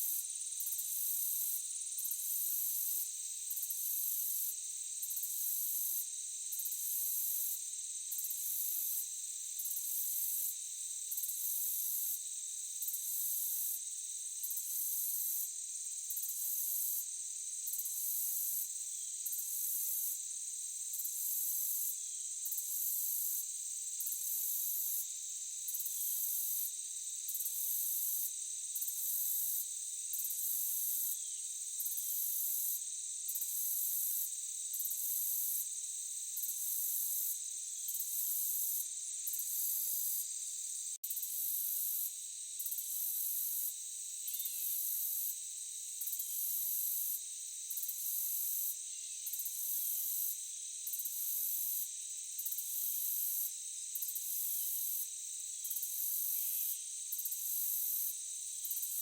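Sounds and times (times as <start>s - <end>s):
crickets trilling: 11.9s - 59.0s
high insect buzz: 25.8s - 59.0s.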